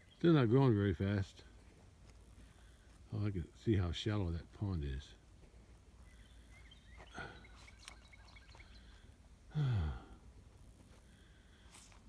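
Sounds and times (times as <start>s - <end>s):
faint bird chirps: 6.0s - 9.1s.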